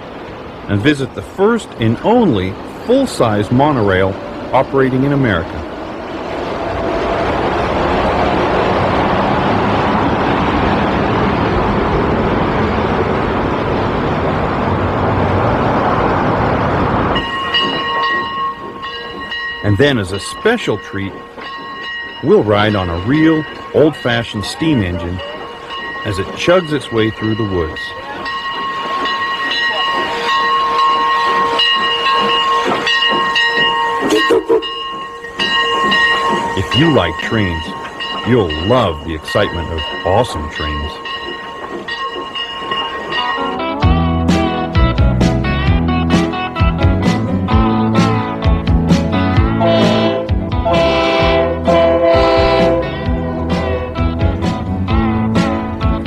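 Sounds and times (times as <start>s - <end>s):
train rushing by: 0.0s - 56.0s
steam locomotive whistle: 29.0s - 34.8s, 49.5s - 54.0s.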